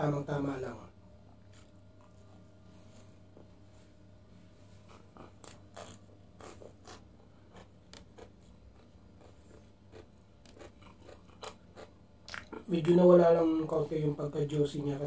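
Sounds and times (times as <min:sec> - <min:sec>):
chewing crisp flatbread: 0:04.9 - 0:12.7.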